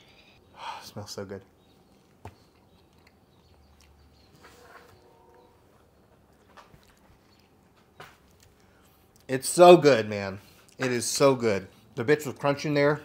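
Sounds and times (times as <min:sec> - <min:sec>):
man chewing: 0:01.8 - 0:04.4, 0:06.2 - 0:09.3.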